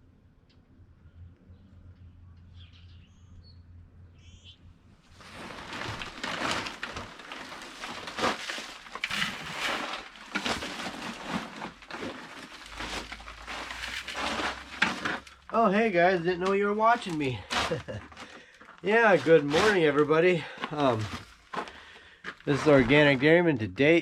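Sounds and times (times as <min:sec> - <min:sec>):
faint bird chirps: 0:01.0 - 0:04.7
rough rustling and scraping: 0:05.0 - 0:24.0.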